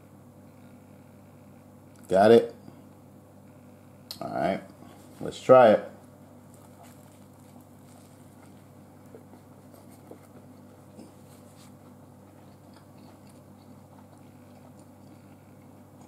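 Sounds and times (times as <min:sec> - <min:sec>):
steady low hum: 0:00.0 - 0:16.0
faint chewing: 0:06.3 - 0:16.0.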